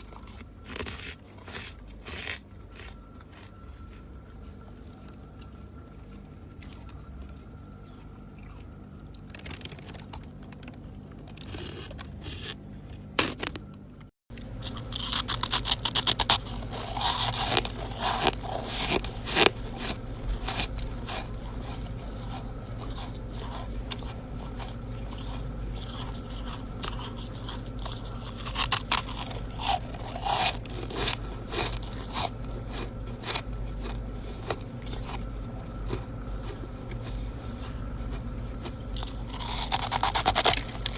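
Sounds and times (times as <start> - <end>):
chewing crunchy ice: 0.0 - 13.7, 14.4 - 40.9
frost being scraped: 14.6 - 35.2, 38.9 - 40.9.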